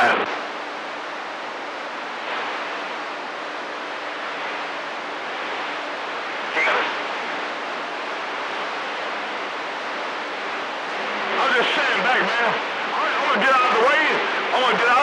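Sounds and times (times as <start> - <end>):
radio static hiss: 0.0 - 15.0
keyed-up radio signal burst: 6.4 - 7.1, 11.0 - 15.0.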